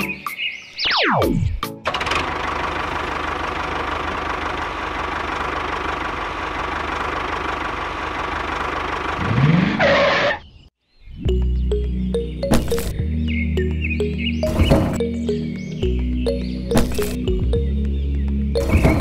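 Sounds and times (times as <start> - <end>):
tractor engine chugging: 1.8 - 9.2.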